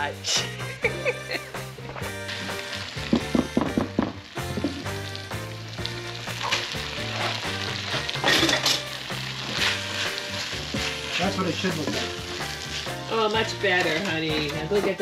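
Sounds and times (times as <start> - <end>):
rice sizzling in a pan: 1.3 - 15.0
spatula scraping a pan: 6.4 - 13.0.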